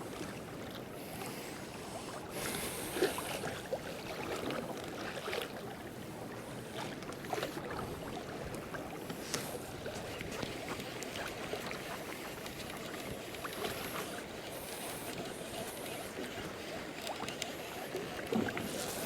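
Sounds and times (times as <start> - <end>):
water lapping against kayak hull: 0.0 - 19.0.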